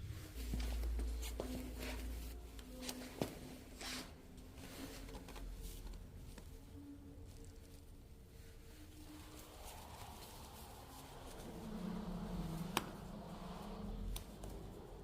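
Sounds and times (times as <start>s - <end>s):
low rumble: 6.0s - 15.0s.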